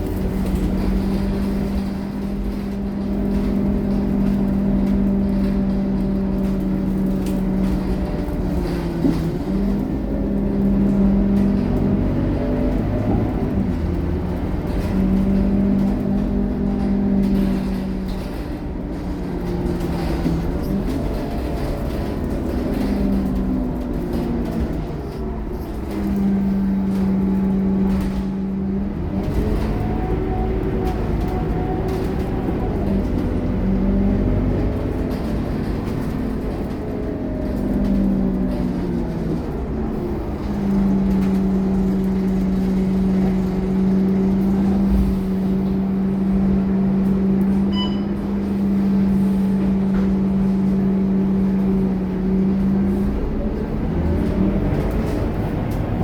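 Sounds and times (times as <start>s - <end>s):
bus diesel engine running: 0.0s - 56.0s
short high beep: 47.7s - 48.1s.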